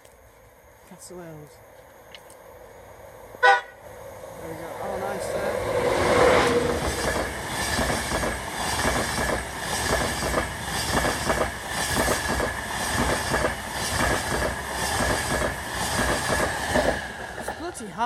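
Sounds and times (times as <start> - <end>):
train wheels clattering over rail joints: 6.6 - 17.6.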